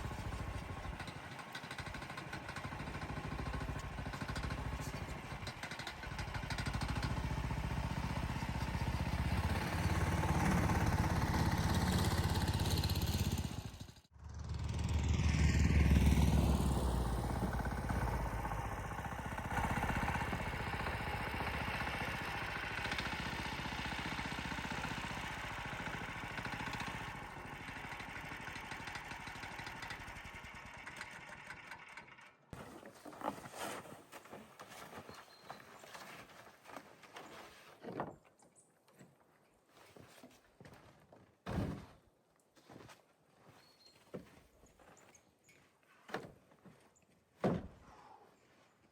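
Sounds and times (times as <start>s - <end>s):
motor engine running: 0.0s - 32.4s.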